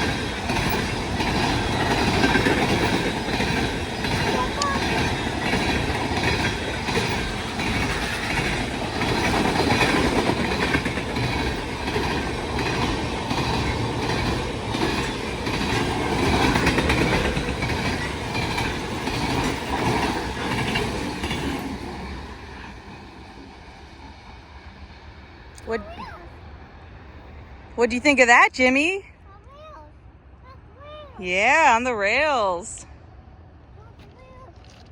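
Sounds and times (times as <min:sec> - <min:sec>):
freight train wheels clacking: 0:00.0 - 0:26.0.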